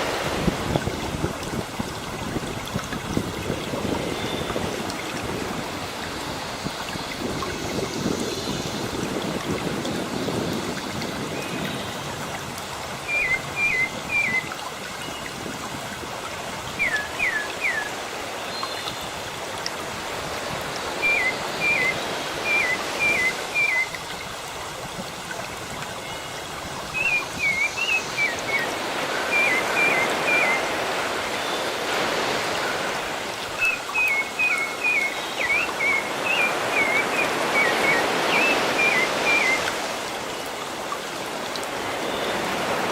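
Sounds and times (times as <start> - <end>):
sea surf washing: 0.0 - 25.8, 26.5 - 42.9
songbird chirping: 13.1 - 14.6, 20.9 - 24.0, 33.6 - 39.8.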